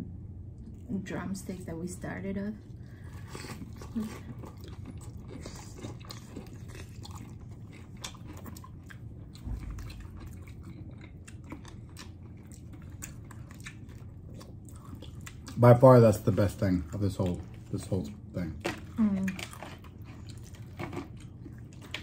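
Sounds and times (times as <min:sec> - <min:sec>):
chewing crunchy fried chicken: 0:02.6 - 0:22.0
low thump: 0:09.3 - 0:10.1.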